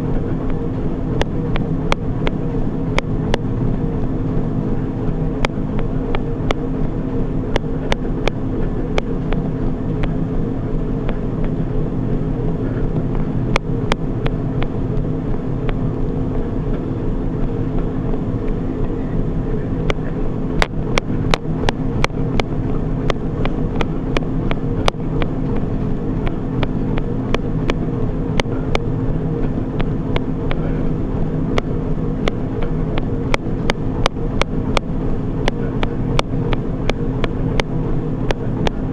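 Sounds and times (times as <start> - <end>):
treadmill motor and belt drone: 0.0 - 38.9
sharp clicks: 20.6 - 27.8.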